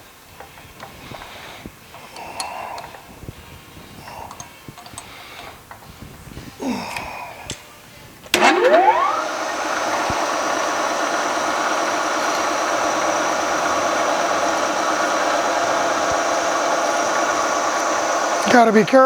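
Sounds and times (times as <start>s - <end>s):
milling machine motor winding up: 8.3s - 19.0s.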